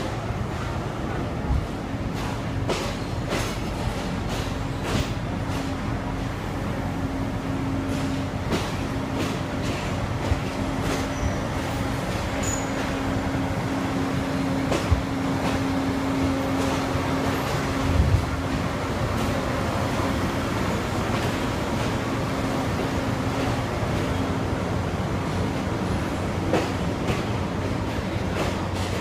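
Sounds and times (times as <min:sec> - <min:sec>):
train rumbling: 0:00.0 - 0:29.0
wheels clacking over rail joints: 0:14.4 - 0:20.1, 0:26.4 - 0:29.0.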